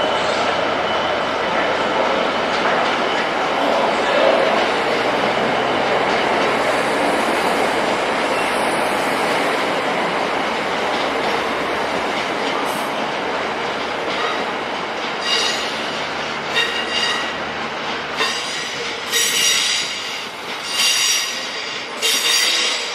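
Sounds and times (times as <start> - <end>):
train wheels rumbling on rails: 0.0 - 22.9.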